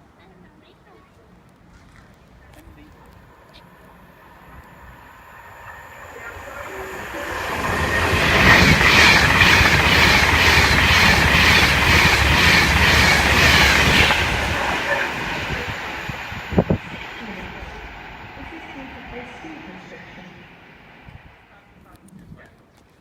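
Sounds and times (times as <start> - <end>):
train passing at speed: 2.5 - 21.9
wheels clacking over rails: 3.2 - 19.8.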